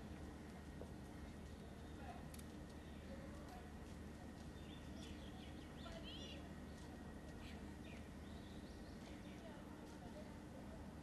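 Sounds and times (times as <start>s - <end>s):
low background hum: 0.0s - 11.0s
faint bird chirps: 4.6s - 9.5s.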